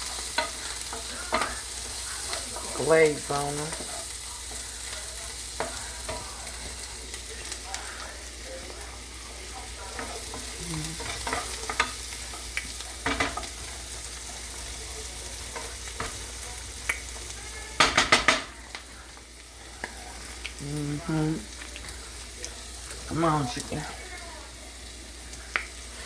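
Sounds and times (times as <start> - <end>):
vegetables sizzling in a pan: 0.0 - 26.0.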